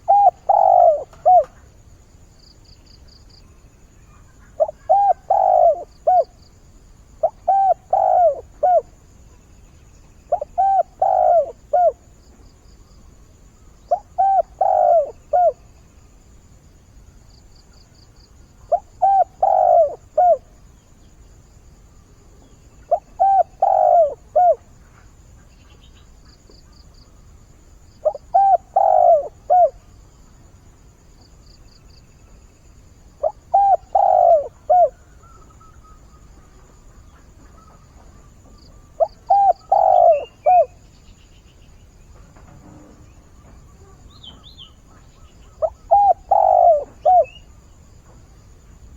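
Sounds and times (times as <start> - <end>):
dove cooing: 0.0 - 1.7, 4.5 - 6.4, 7.2 - 9.0, 10.3 - 12.1, 13.9 - 15.6, 18.6 - 20.5, 22.8 - 24.7, 28.0 - 29.9, 33.2 - 36.8, 37.4 - 40.8, 43.8 - 47.5
faint high chirping trills: 0.0 - 1.7, 2.4 - 6.5, 7.1 - 15.9, 28.0 - 30.3, 31.4 - 48.2.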